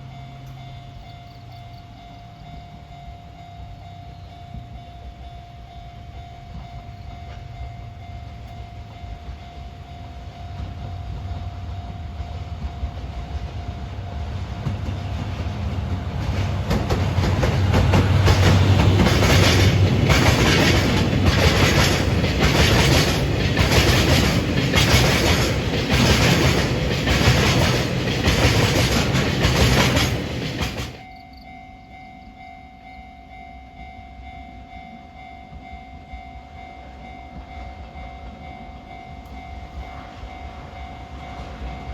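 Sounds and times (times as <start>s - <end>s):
train passing: 0.0s - 41.9s
wheels clattering over rail joints: 10.5s - 31.0s.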